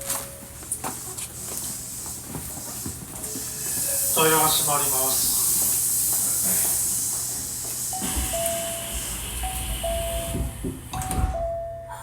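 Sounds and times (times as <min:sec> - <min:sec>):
steady air hiss: 0:01.3 - 0:10.2
train doors thumping shut: 0:08.0 - 0:11.8
two-note descending door chime: 0:08.0 - 0:12.0.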